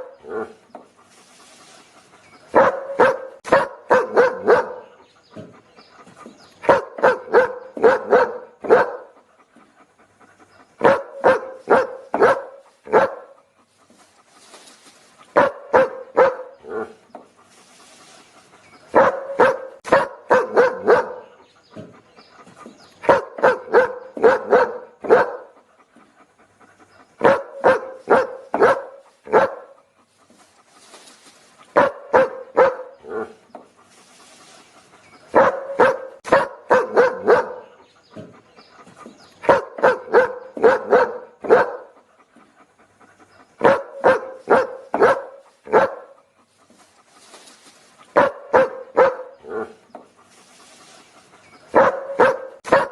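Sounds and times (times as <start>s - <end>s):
dog barking: 0.0s - 0.6s, 2.5s - 5.0s, 6.6s - 9.2s, 10.8s - 13.4s, 15.3s - 17.0s, 18.9s - 21.4s, 23.0s - 25.6s, 27.2s - 29.8s, 31.7s - 33.4s, 35.3s - 38.3s, 39.4s - 42.0s, 43.6s - 46.2s, 48.1s - 49.8s, 51.7s - 52.9s.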